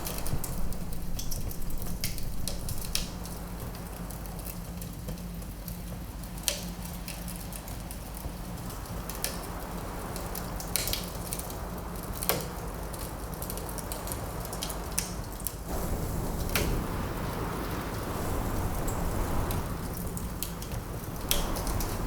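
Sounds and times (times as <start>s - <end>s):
fire hissing: 0.0s - 4.8s, 15.6s - 22.0s
fire pops: 0.0s - 5.3s, 14.6s - 22.0s
wood fire crackling: 0.0s - 22.0s.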